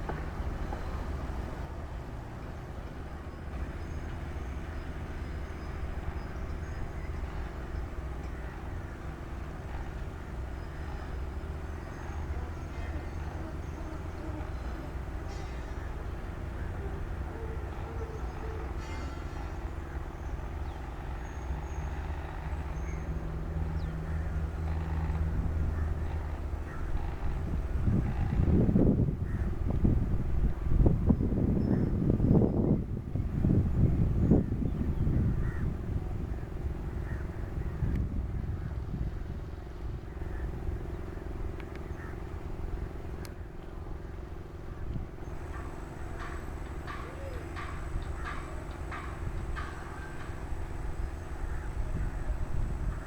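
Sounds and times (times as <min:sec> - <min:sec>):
locomotive engine rumbling: 0:00.0 - 0:53.0
held hum: 0:16.5 - 0:53.0.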